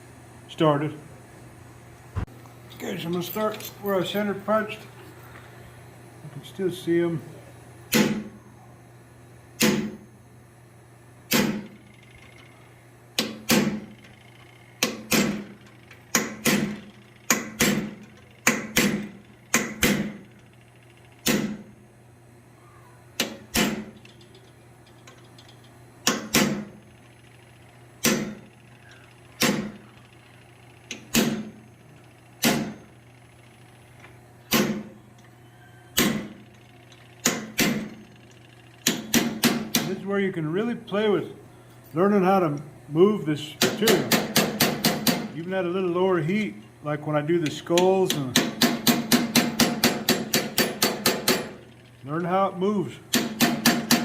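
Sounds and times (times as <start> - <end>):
steady low hum: 0.0 - 54.0
hammer striking punch on steel: 7.9 - 8.4, 9.6 - 10.0, 11.3 - 11.7, 13.2 - 13.9, 14.8 - 20.2, 21.2 - 21.7, 23.2 - 23.9, 26.0 - 26.8, 28.0 - 28.4, 29.4 - 29.8, 30.9 - 31.6, 32.4 - 32.8, 34.5 - 35.0, 36.0 - 36.4, 37.2 - 38.0, 38.8 - 40.0, 43.6 - 45.3, 48.1 - 51.6, 53.1 - 54.0.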